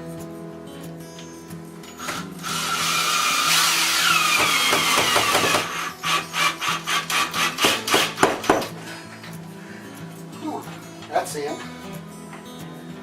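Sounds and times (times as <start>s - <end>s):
power drill driving screw: 2.0s - 8.7s.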